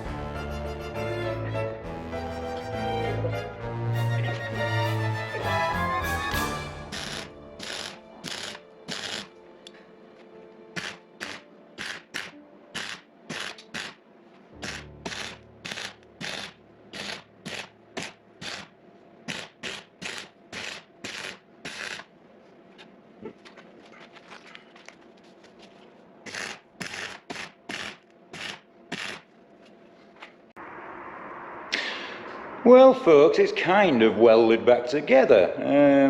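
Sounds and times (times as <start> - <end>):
filing strokes on metal: 6.9 - 9.3, 10.8 - 14.0, 14.6 - 18.7, 19.3 - 22.1, 26.3 - 29.2.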